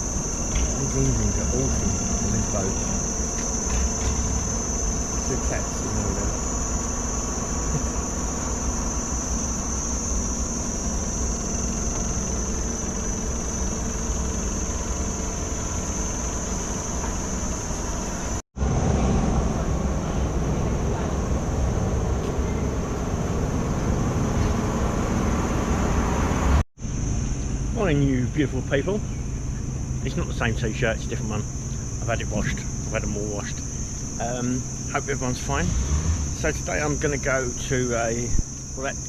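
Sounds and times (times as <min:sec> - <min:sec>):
insects buzzing: 0:00.0 - 0:39.0
low steady rumble: 0:00.0 - 0:39.0.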